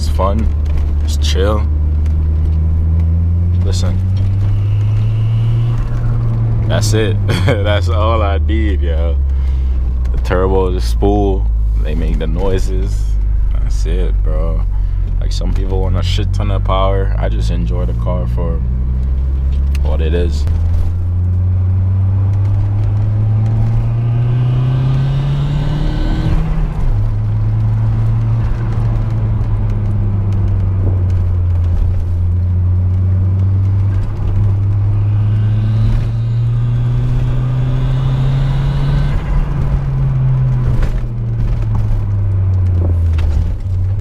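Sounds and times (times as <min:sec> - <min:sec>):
car engine accelerating: 0:00.0 - 0:44.0
turbo spool whistle: 0:04.4 - 0:06.4, 0:35.0 - 0:39.4.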